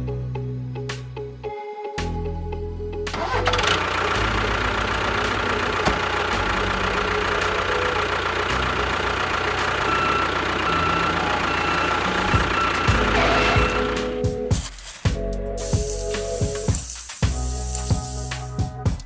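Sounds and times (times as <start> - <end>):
engine idling: 3.1 - 14.4.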